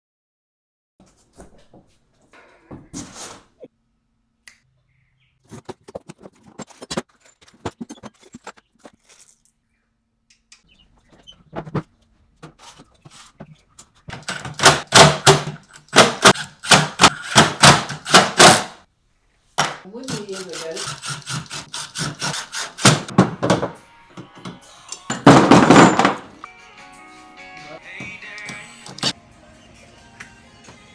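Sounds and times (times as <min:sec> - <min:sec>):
sharp clicks and knocks: 0:13.8 - 0:18.7.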